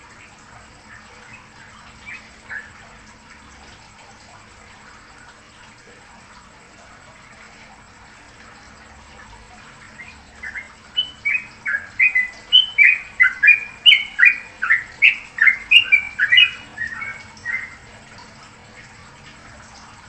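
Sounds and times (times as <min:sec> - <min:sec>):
songbird chirping: 0:00.8 - 0:03.0, 0:09.8 - 0:17.9.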